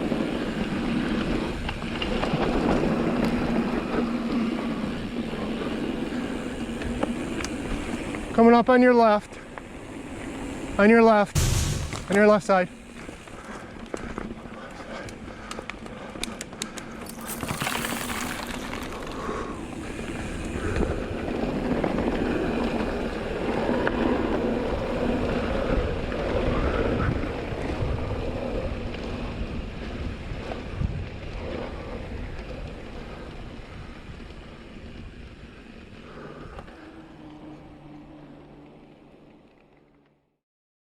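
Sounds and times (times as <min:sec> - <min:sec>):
bike tyres rolling on dirt: 0:00.0 - 0:11.4, 0:12.1 - 0:40.2
wind buffeting microphone: 0:19.5 - 0:36.8.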